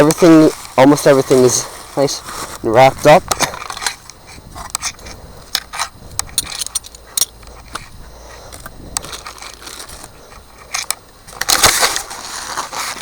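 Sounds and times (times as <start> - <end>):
parts clicking and knocking: 3.2 - 12.2
packaging rustling: 9.0 - 13.0.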